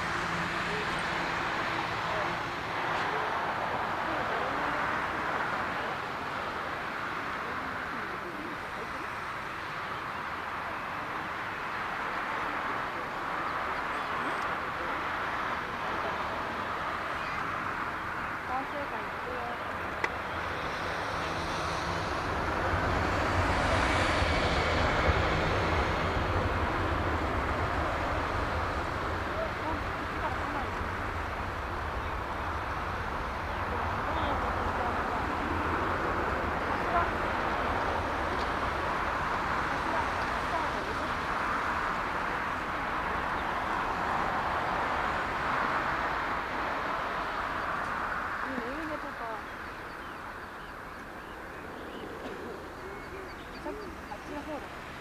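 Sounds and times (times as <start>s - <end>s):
jet airliner passing by: 12.3s - 55.0s.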